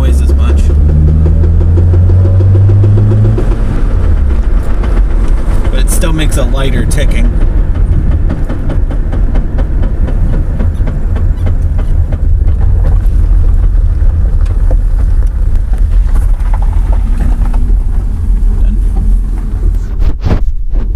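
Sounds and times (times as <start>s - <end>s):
rapid ticking clunks: 0.0s - 20.4s
car engine low rumble: 0.0s - 20.9s.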